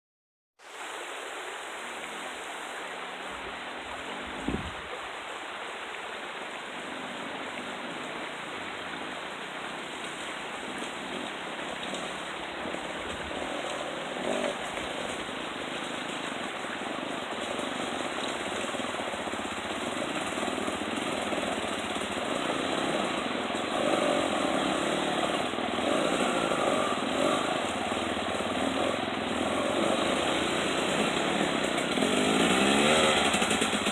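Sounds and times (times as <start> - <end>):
dirt bike engines running: 6.8 - 33.9.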